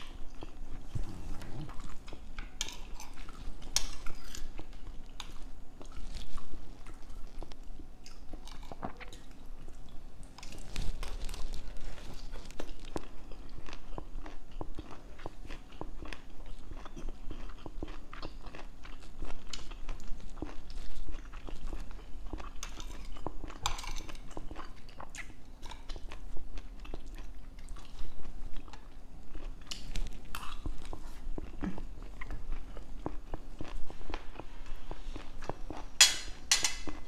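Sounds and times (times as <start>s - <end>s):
wet chewing of food: 0.0s - 37.0s
cutlery clinking on a plate: 36.0s - 37.0s.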